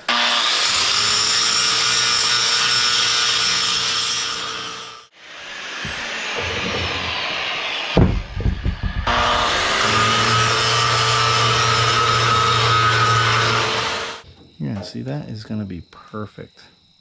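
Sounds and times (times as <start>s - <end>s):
electric cutting tool whining: 0.0s - 14.2s
metal knocks: 8.0s - 9.6s.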